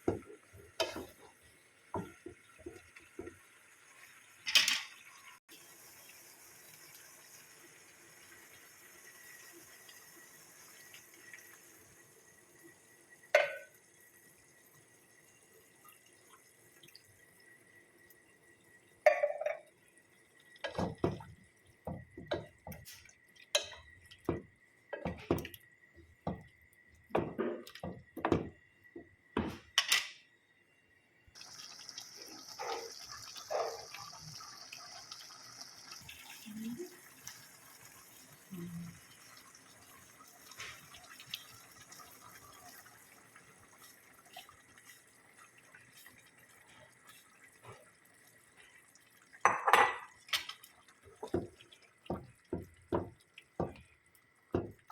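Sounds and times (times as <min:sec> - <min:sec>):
kitchen knocks and clatter: 0:00.0 - 0:01.3, 0:04.5 - 0:05.0, 0:20.6 - 0:25.6, 0:26.2 - 0:26.5, 0:27.1 - 0:30.2, 0:49.4 - 0:50.6, 0:51.2 - 0:53.9, 0:54.5 - 0:54.9.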